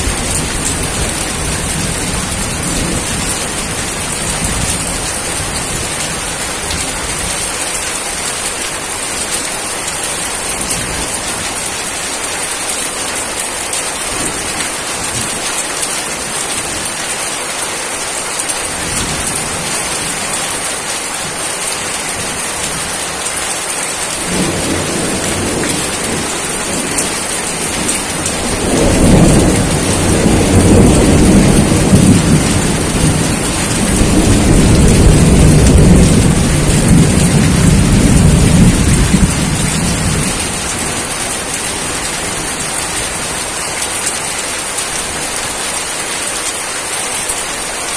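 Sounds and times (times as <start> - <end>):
steady rain falling: 0.0 - 47.9
rolling thunder rumble: 24.2 - 41.2.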